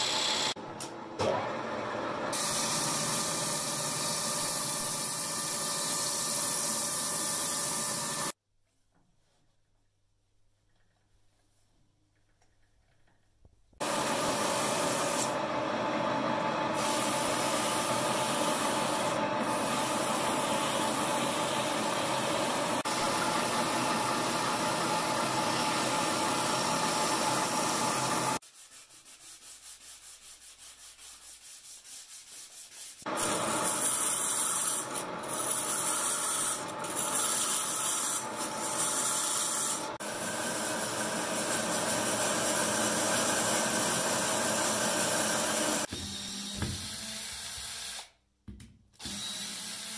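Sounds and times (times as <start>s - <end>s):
sawmill machinery cutting wood: 13.8s - 28.4s, 33.1s - 46.5s.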